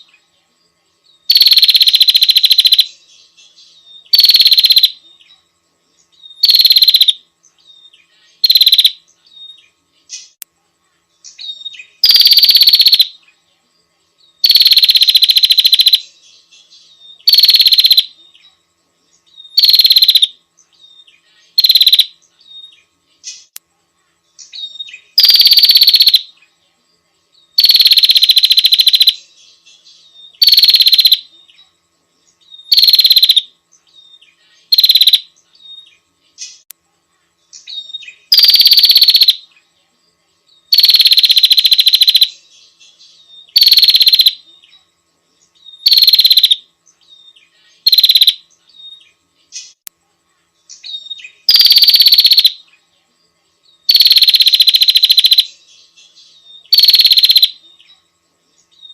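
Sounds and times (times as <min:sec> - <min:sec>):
harsh bird chattering calls: 0:01.3 - 0:02.9, 0:04.1 - 0:05.0, 0:06.4 - 0:07.2, 0:08.4 - 0:09.0, 0:12.0 - 0:13.1, 0:19.6 - 0:20.3, 0:21.6 - 0:22.1, 0:25.2 - 0:26.2, 0:30.4 - 0:31.2, 0:32.7 - 0:33.4, 0:34.7 - 0:35.2, 0:38.3 - 0:39.4, 0:40.7 - 0:42.3, 0:43.5 - 0:44.4, 0:45.8 - 0:46.6, 0:47.8 - 0:48.4, 0:51.5 - 0:52.6, 0:53.9 - 0:55.5, 0:56.7 - 0:57.6.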